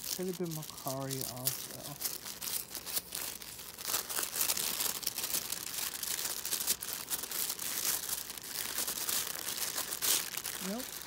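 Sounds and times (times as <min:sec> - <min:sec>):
packaging crinkling and rustling: 0:00.0 - 0:11.0
packaging tearing: 0:00.0 - 0:11.0.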